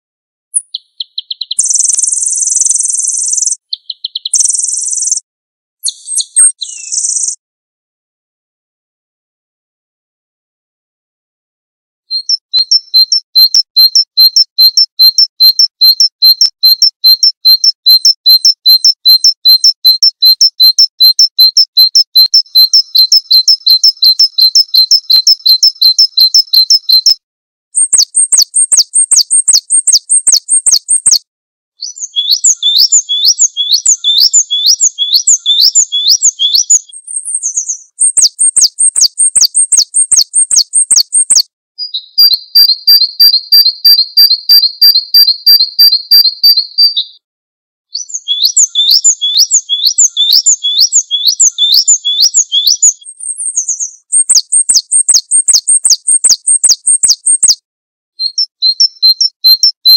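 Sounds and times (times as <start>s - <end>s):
songbirds chirping: 0.5s - 5.2s, 5.8s - 7.4s, 31.8s - 41.4s, 48.0s - 57.4s.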